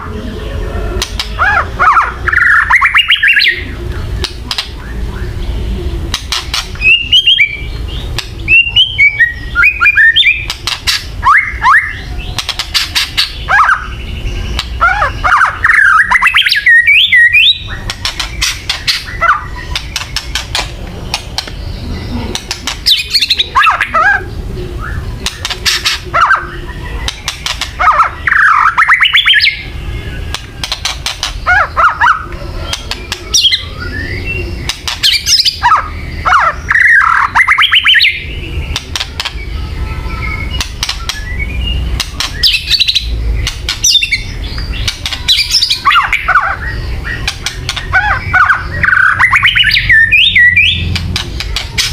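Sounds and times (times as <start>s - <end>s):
songbird rattling chatter: 6.1s - 8.5s, 10.3s - 11.3s, 12.3s - 13.9s, 17.5s - 21.6s, 22.3s - 24.0s, 25.2s - 26.0s, 27.0s - 29.4s, 30.2s - 33.6s, 34.6s - 38.0s, 38.6s - 49.8s, 50.8s - 51.9s.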